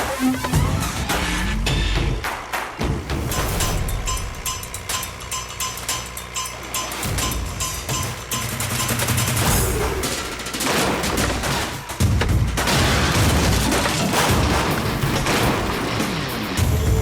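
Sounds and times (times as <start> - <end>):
dramatic background music: 7.0 - 17.0
bangs and crashes: 9.2 - 17.0.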